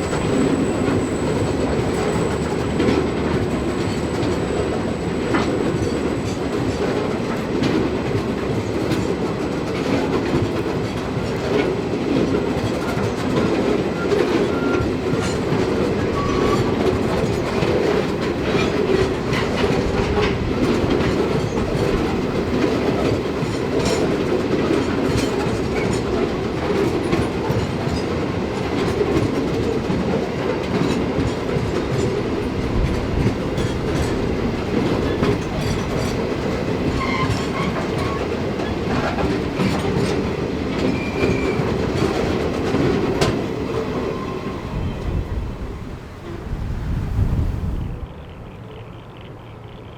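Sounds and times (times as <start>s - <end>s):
wheels clicking over track joints: 0.0s - 45.2s
train wagons rolling on rails: 0.0s - 49.9s.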